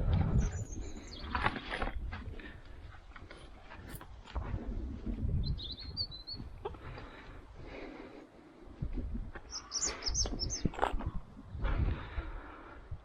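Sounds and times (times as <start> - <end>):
bird chirping: 0.3 - 1.6, 5.4 - 6.6, 9.5 - 10.8.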